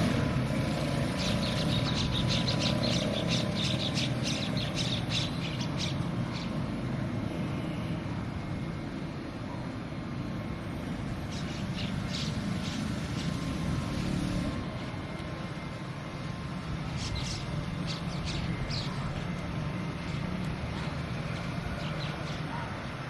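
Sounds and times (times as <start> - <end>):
traffic rumble: 0.0 - 23.0
small birds chirping: 0.7 - 6.7, 11.1 - 14.4, 16.8 - 22.7.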